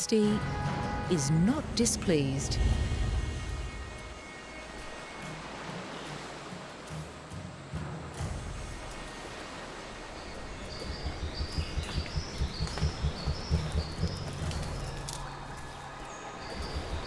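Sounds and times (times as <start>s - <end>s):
low rhythmic pulsing: 8.1s - 17.0s
small bird chirping: 10.2s - 17.0s.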